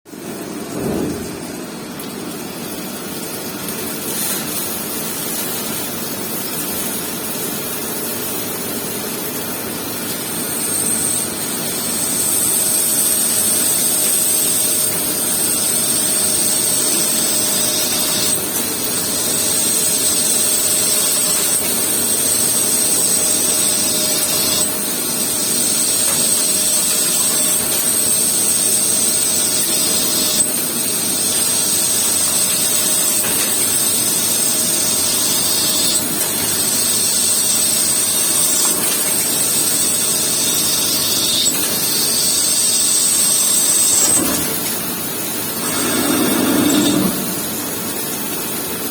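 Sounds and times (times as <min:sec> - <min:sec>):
high-pitched machine whine: 0:10.1 - 0:44.5, 0:45.3 - 0:48.9
machine hissing: 0:45.4 - 0:48.4.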